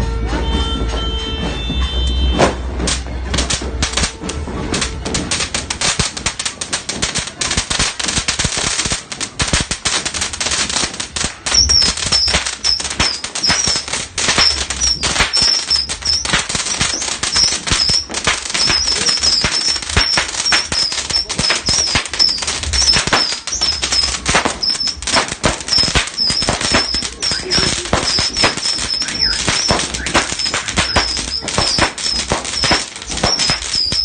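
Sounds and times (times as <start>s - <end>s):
firework pops and cracks: 1.4s - 34.0s
warbling firework whistles: 11.4s - 34.0s.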